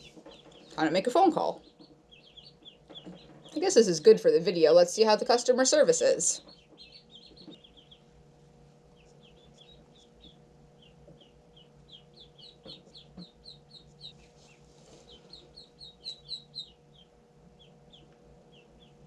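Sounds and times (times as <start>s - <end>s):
ducklings peeping: 0.0s - 19.0s
faint steady hum: 0.0s - 19.0s.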